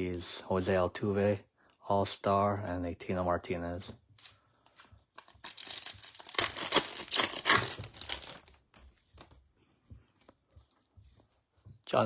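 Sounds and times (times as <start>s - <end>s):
wrapper tearing and crinkling: 5.1s - 8.7s.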